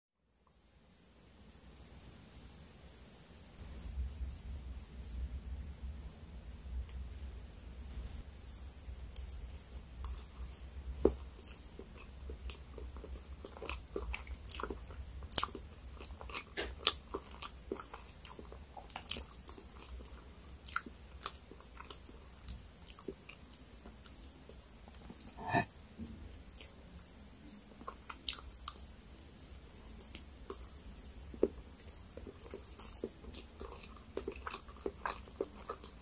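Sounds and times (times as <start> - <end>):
chewing soft cake: 6.7 - 36.0
fork cutting into cake: 25.0 - 25.7.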